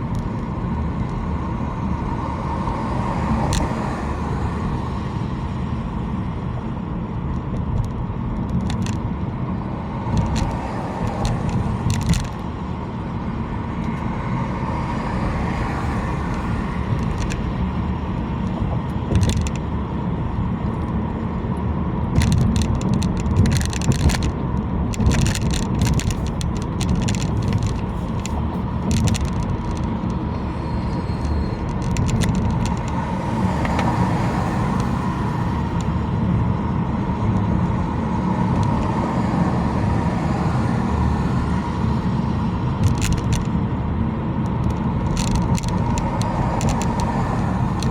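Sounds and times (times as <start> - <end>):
car road and engine rumble: 0.0 - 47.9
clicks and rattles: 7.6 - 9.0, 10.1 - 12.6, 16.3 - 19.7, 22.1 - 30.3, 31.6 - 33.9, 42.8 - 43.6, 44.4 - 47.9.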